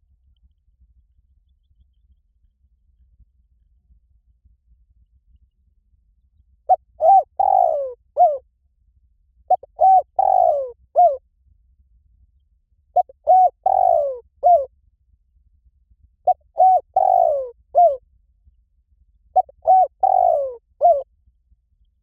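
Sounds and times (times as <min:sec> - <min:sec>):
dove cooing: 0:06.7 - 0:08.4, 0:09.5 - 0:11.2, 0:13.0 - 0:14.7, 0:16.3 - 0:18.0, 0:19.4 - 0:21.0.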